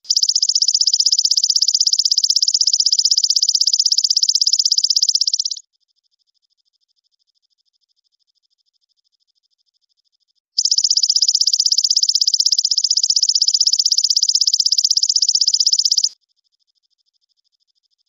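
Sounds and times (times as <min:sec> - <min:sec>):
songbird high-pitched trill: 0:00.1 - 0:05.6, 0:10.6 - 0:16.2.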